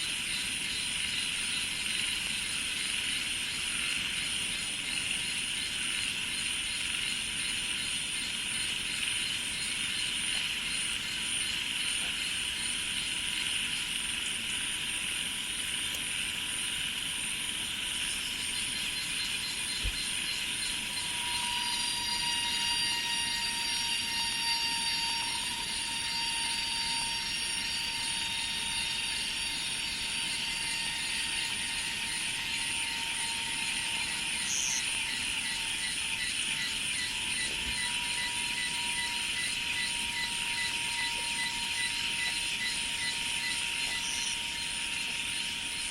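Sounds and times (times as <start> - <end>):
cicadas and crickets buzzing: 0.0 - 45.9
thin whistling tone: 19.7 - 45.9.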